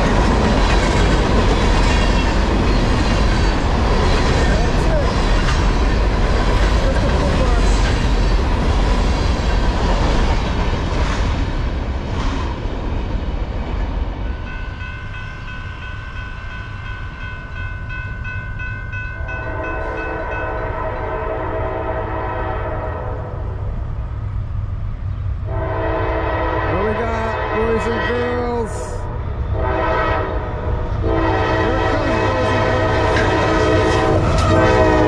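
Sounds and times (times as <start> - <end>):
wheels rumbling on rail: 0.0 - 35.0
crossing bell ringing: 14.2 - 21.2
locomotive air horn: 19.2 - 23.4, 25.5 - 28.4, 29.5 - 35.0.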